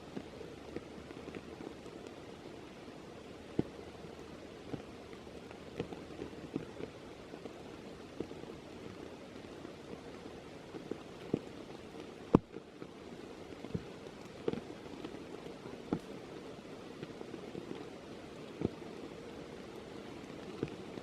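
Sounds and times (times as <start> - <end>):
sharp raindrops striking nearby: 0.0 - 21.0
steady rain: 0.0 - 21.0.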